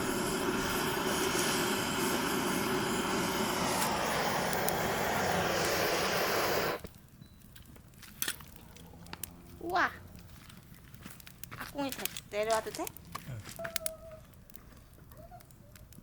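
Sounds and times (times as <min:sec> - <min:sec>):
gas torch flame jet: 0:00.0 - 0:06.9.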